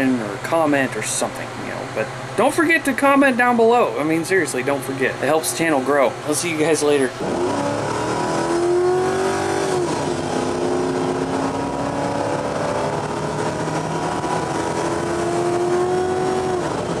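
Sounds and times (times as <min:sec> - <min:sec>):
car engine revving: 0:03.9 - 0:17.0.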